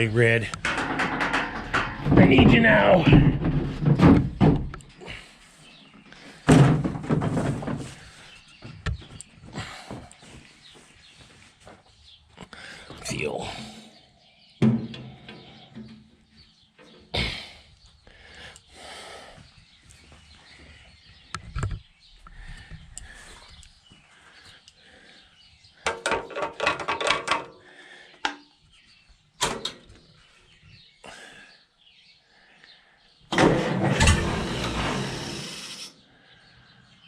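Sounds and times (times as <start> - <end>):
birds chirping faintly: 0.0 - 33.3, 34.1 - 37.0
knocks and clanks: 0.4 - 5.1, 6.4 - 9.2, 14.6 - 16.2, 25.9 - 27.5, 33.3 - 35.6
rattling clatter: 0.5 - 4.8, 33.3 - 35.8.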